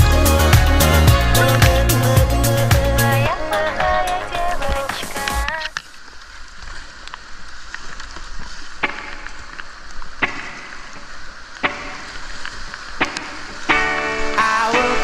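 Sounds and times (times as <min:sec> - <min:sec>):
whitewater rushing: 0:06.5 - 0:15.0
paddle strikes: 0:08.1 - 0:14.6.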